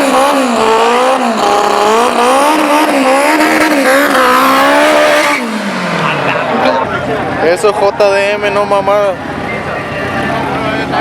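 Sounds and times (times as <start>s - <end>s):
car engine revving hard: 0.0s - 7.5s.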